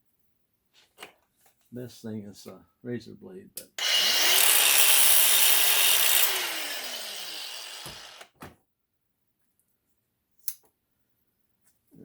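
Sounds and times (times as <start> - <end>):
grinder on metal: 3.8 - 8.2.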